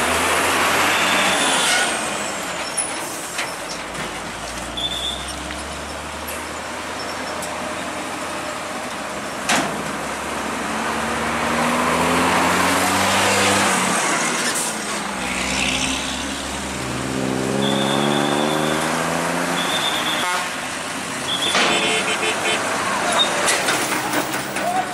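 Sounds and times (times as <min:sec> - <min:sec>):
diesel engine revving: 0:00.0 - 0:03.3, 0:04.2 - 0:24.7
steady high beep: 0:17.6 - 0:18.8.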